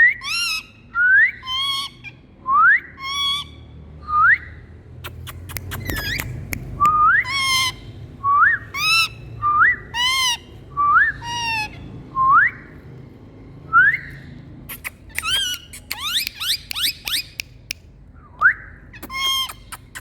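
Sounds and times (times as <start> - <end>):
parrot whistling and squawking: 0.0 - 2.2, 2.8 - 3.6, 4.4 - 11.8, 13.8 - 17.4, 18.5 - 20.0.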